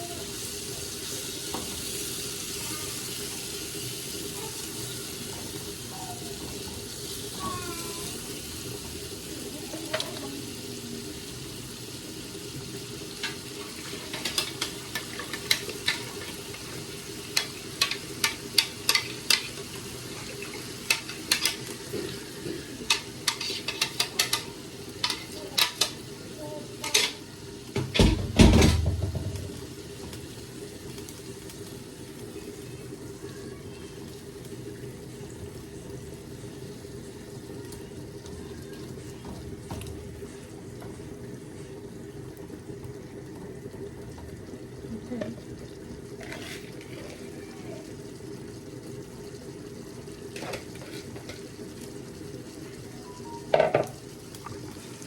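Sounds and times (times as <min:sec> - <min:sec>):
food cooking hiss: 0:00.0 - 0:55.0
spoon knocking against a pot: 0:27.8 - 0:29.6, 0:53.5 - 0:54.0.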